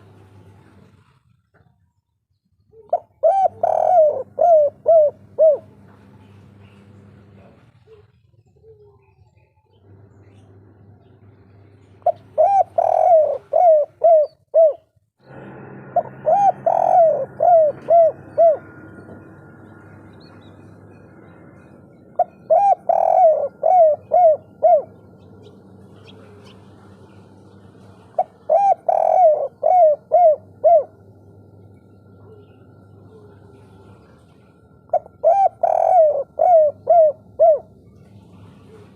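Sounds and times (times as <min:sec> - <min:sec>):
dove cooing: 0:02.7 - 0:09.4, 0:12.0 - 0:38.9.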